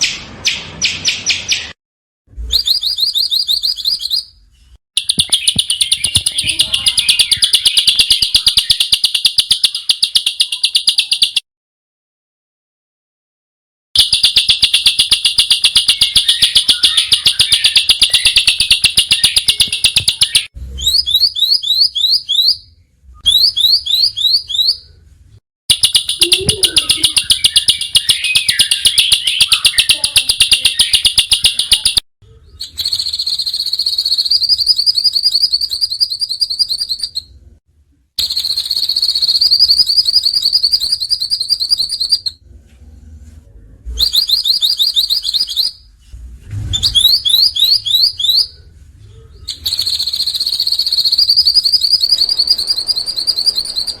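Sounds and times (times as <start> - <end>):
bird rising chirps: 2.4 - 4.4, 5.0 - 11.4, 25.7 - 37.4, 38.2 - 42.4, 46.8 - 48.5, 49.5 - 54.0
songbird harsh high-pitched trills: 5.0 - 11.4, 14.0 - 22.6, 25.7 - 37.3, 38.2 - 42.4, 46.8 - 48.5, 49.5 - 54.0.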